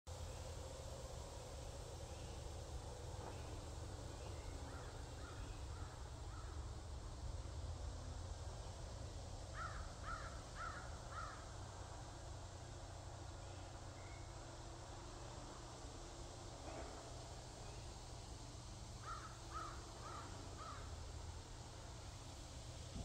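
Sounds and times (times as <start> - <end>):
low steady rumble: 0.1 - 23.0
bird calling: 3.2 - 6.7, 9.5 - 11.5, 19.0 - 21.0.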